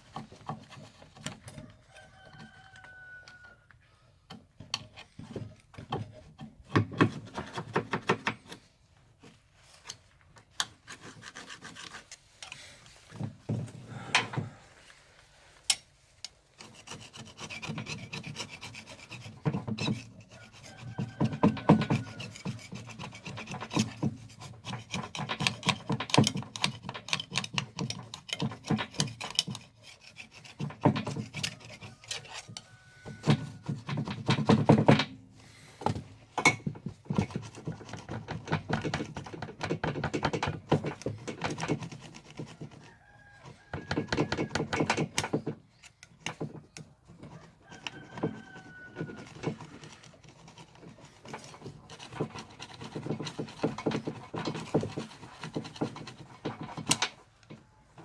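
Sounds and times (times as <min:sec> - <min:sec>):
hand tool rasping on metal: 0:10.6 - 0:12.6, 0:15.6 - 0:35.7, 0:36.4 - 0:57.3.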